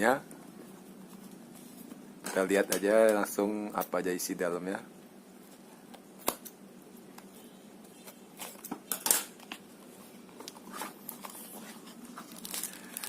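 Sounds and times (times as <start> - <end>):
cardboard and paper rustling: 10.0 - 13.0.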